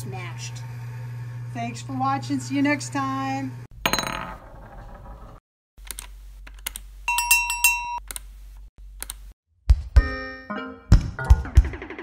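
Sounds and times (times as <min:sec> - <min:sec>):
sharp clicks: 0:09.0 - 0:09.2.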